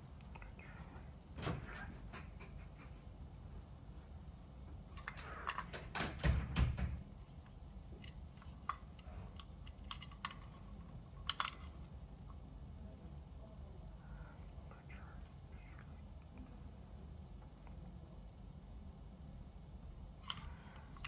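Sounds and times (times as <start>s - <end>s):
small hard parts clicking: 4.6s - 12.4s, 20.1s - 21.0s.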